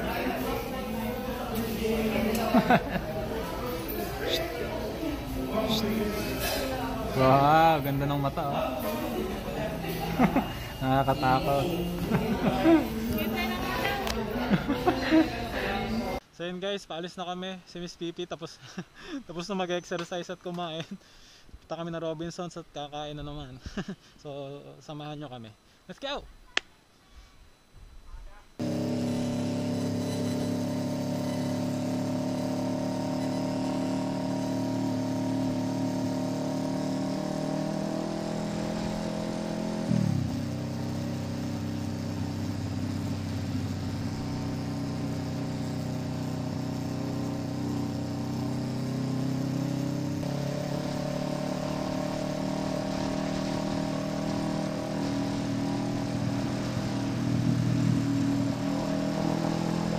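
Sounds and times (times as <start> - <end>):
motorcycle engine revving: 0.0 - 16.2, 28.6 - 59.9.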